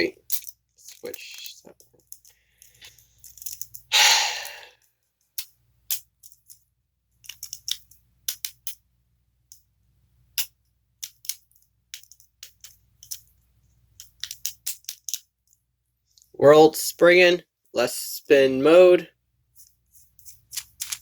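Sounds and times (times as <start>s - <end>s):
plastic parts rattling: 0.0s - 3.9s, 5.2s - 8.8s, 10.3s - 15.6s, 19.6s - 21.0s
plastic pieces clicking together: 0.2s - 3.9s, 5.2s - 6.6s, 7.2s - 8.8s, 10.3s - 15.6s, 20.1s - 21.0s.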